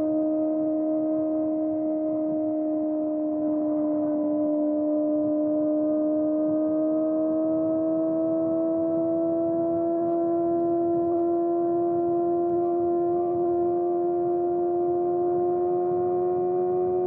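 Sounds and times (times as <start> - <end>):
motorcycle engine at high revs: 0.0 - 17.0.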